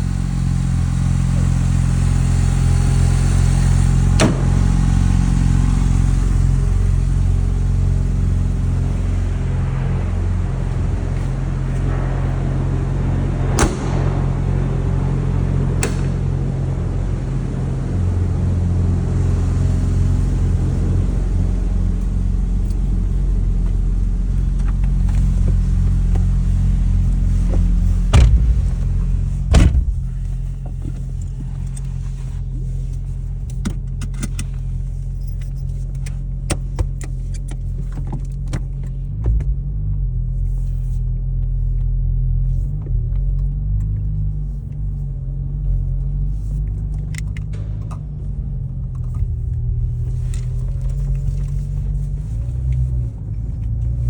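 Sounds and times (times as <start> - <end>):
car engine idling: 0.0 - 54.0
sharp knocks: 28.1 - 30.2.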